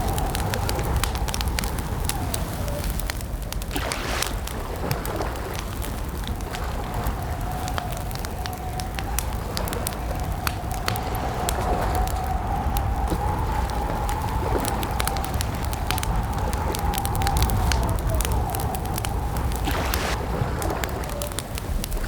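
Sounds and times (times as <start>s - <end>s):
campfire crackling: 0.0s - 22.0s
low rumble: 5.9s - 22.0s.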